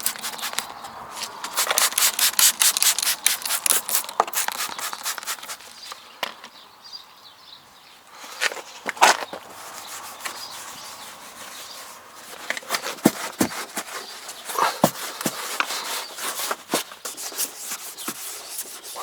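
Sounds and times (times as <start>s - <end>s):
spray hissing strokes: 0.0s - 0.7s, 1.5s - 5.6s.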